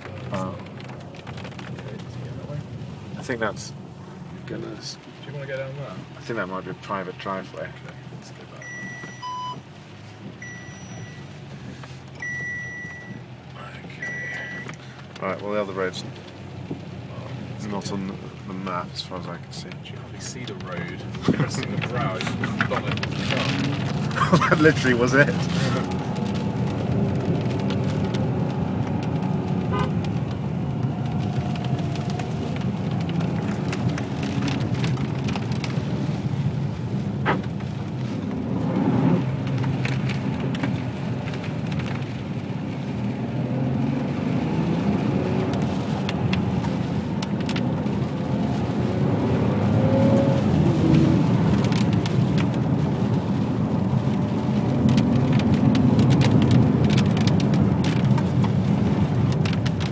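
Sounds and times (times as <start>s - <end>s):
car engine running: 0.0s - 59.9s
tyre hiss on wet road: 11.4s - 12.2s.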